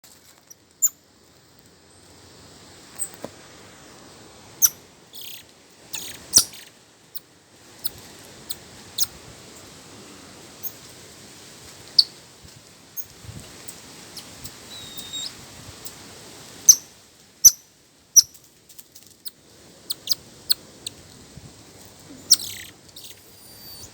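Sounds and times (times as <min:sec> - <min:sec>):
faint outdoor hiss: 0:00.0 - 0:23.9
birds chirping: 0:04.6 - 0:06.8, 0:14.7 - 0:15.4, 0:22.1 - 0:23.9.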